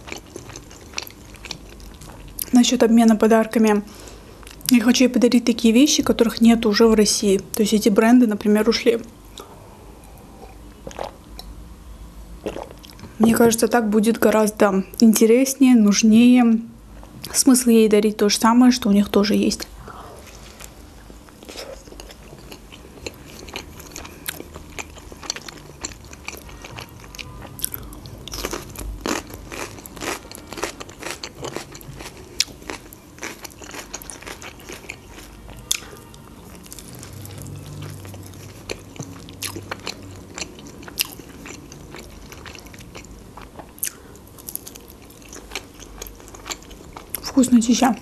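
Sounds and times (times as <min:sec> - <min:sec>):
crunchy chewing of fried dough: 0:00.0 - 0:02.6, 0:20.2 - 0:47.4.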